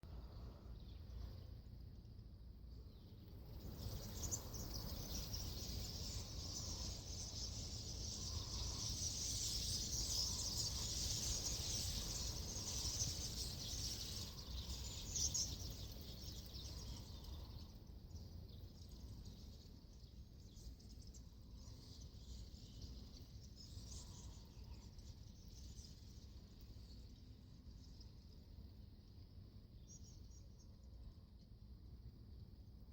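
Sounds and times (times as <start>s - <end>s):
flock of birds chattering: 3.6s - 19.8s, 20.6s - 26.3s.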